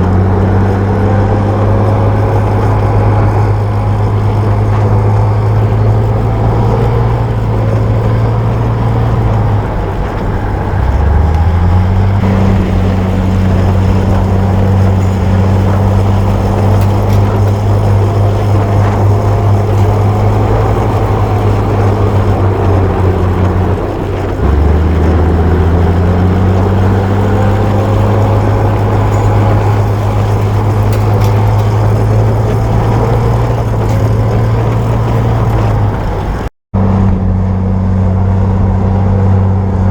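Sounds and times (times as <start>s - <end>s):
bulldozer diesel engine droning: 0.0s - 39.9s.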